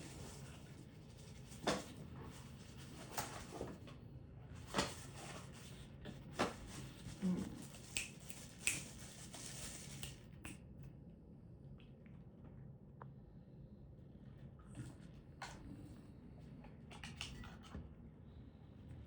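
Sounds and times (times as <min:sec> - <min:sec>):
dog snorting and snuffling: 0:04.8 - 0:10.1.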